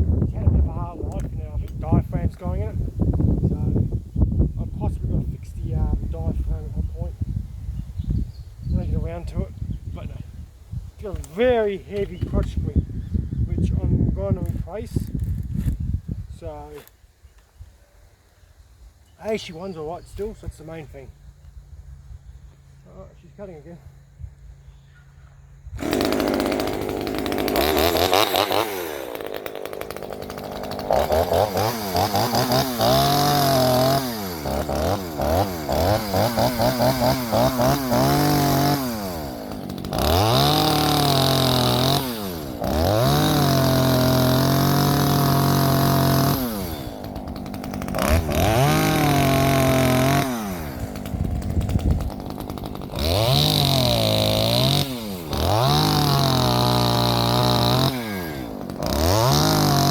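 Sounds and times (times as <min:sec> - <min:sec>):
chainsaw cutting wood: 0:14.4 - 0:15.8, 0:25.7 - 0:59.9.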